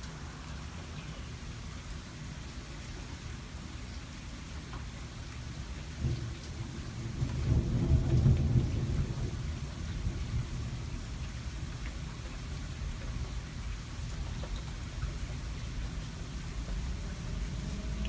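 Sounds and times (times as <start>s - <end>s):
steady rain: 0.0s - 18.0s
low rumble of thunder: 6.0s - 14.2s, 14.8s - 18.0s.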